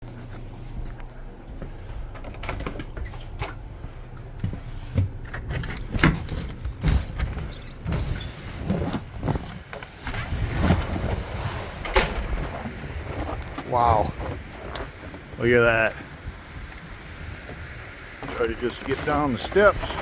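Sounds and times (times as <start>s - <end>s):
knocks and rattles: 5.0s - 14.8s
wind buffeting microphone: 10.1s - 20.0s.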